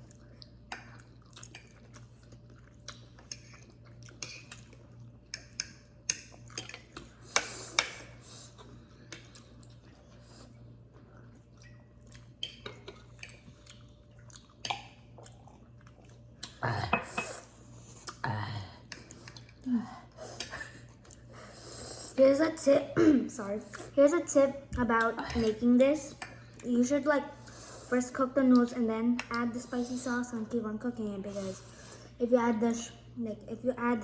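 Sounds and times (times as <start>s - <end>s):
chewing and mouth noises: 0.0s - 16.8s, 17.4s - 19.7s.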